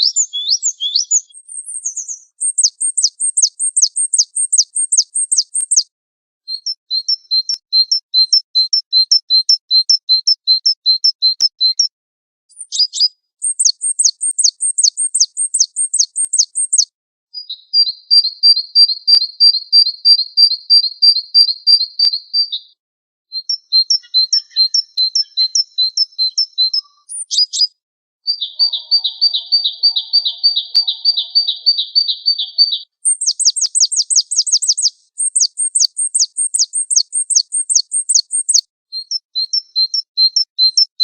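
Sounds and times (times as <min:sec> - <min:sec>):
bird trill of paired notes: 0:00.0 - 0:05.9, 0:12.5 - 0:16.9, 0:23.4 - 0:40.8
downward-sweeping bird chirps: 0:00.0 - 0:05.9, 0:06.5 - 0:11.9, 0:12.5 - 0:40.9.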